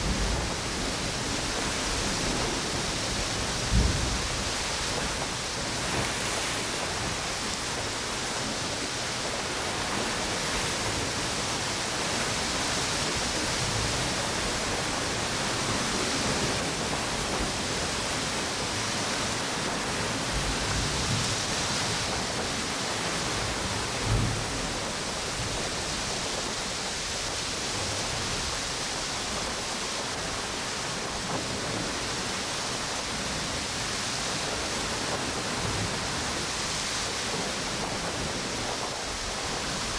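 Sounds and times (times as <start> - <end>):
surf rushing hiss: 0.0 - 39.9.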